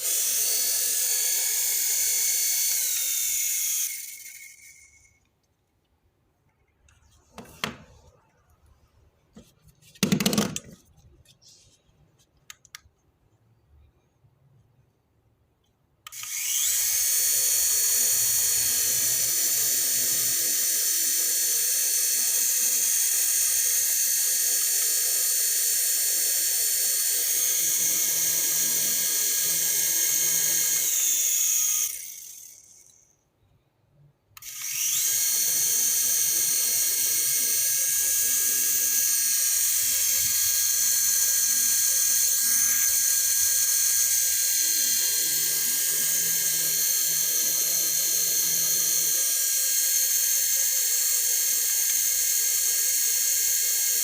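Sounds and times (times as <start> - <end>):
toy helicopter rotor whine: 0.0 - 5.3, 16.0 - 33.3, 34.4 - 54.0.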